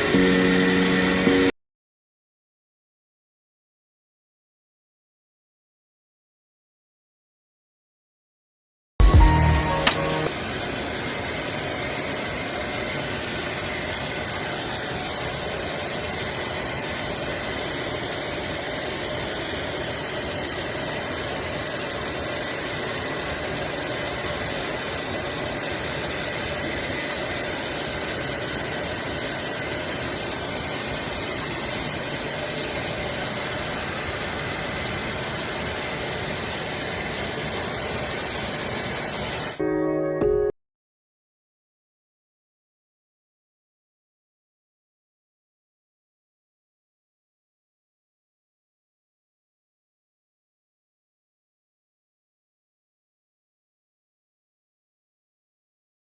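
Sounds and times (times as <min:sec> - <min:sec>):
high machine whines: 0:00.0 - 0:01.5, 0:09.0 - 0:38.3.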